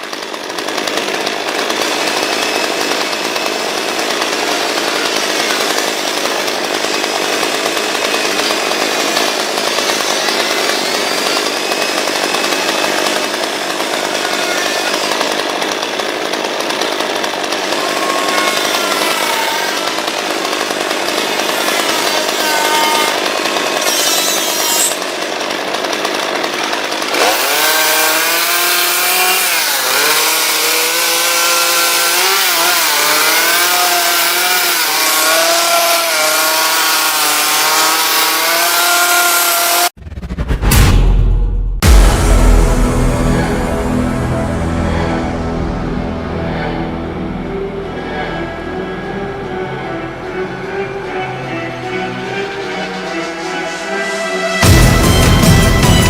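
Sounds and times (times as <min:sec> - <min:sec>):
chainsaw cutting wood: 0:00.0 - 0:40.0
engine sweeping in pitch: 0:41.8 - 0:56.0.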